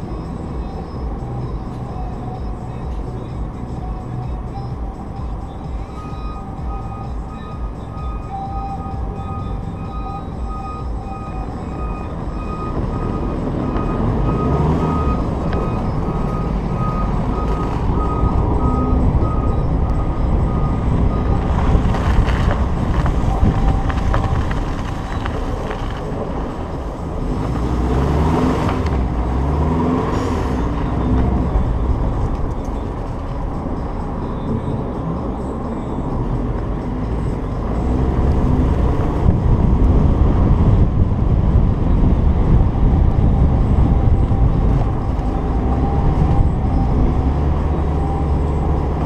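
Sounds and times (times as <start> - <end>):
repeating electronic beep: 0.0 - 25.6
car engine revving: 0.0 - 49.0
road noise: 0.0 - 49.0
wind noise: 11.8 - 34.2, 37.4 - 49.0.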